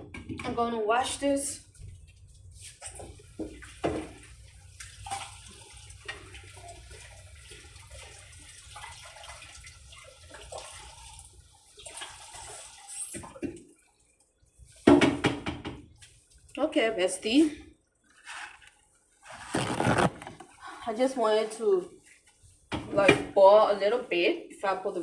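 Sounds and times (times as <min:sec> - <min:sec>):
water running from a tap: 0:02.5 - 0:13.8.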